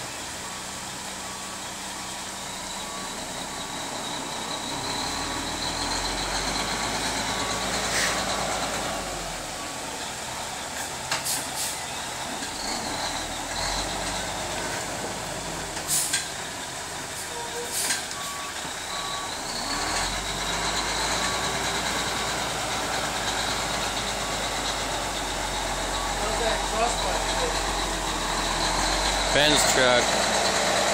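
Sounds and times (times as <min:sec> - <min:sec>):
reversing alarm beeping: 0:00.0 - 0:10.7, 0:16.0 - 0:30.6
truck engine running: 0:00.0 - 0:30.9
air brake hiss: 0:07.8 - 0:08.3, 0:11.2 - 0:11.8, 0:15.9 - 0:16.3, 0:17.2 - 0:18.0.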